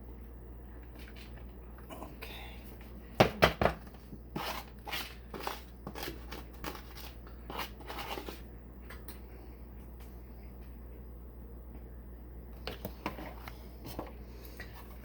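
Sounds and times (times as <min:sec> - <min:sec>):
spoon scraping while stirring: 0:04.3 - 0:08.5.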